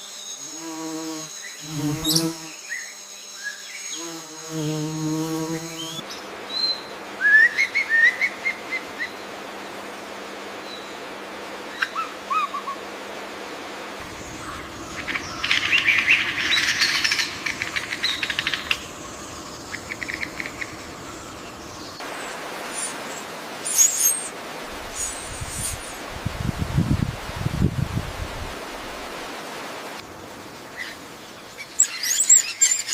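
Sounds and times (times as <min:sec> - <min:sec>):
forest background hiss: 0:00.0 - 0:32.9
birds chirping and calling: 0:14.0 - 0:22.0.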